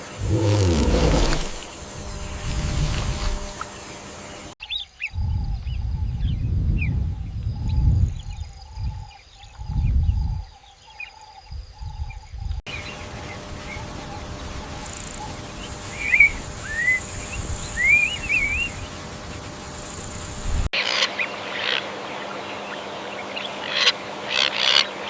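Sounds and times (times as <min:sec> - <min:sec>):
low rumbling: 0:00.0 - 0:03.9.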